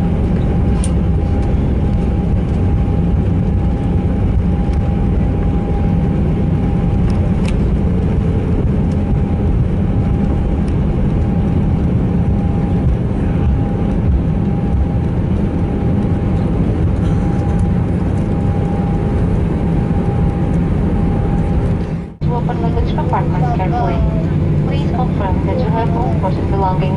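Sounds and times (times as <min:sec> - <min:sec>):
low rumble of engines and wheels: 0:00.0 - 0:26.9
thin steady whine: 0:18.4 - 0:26.9.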